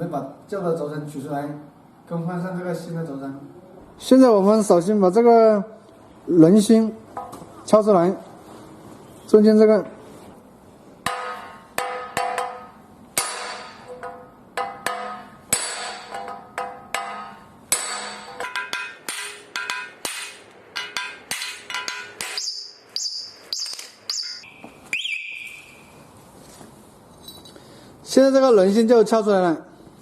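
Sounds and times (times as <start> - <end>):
high metallic ringing: 11.0 - 26.0.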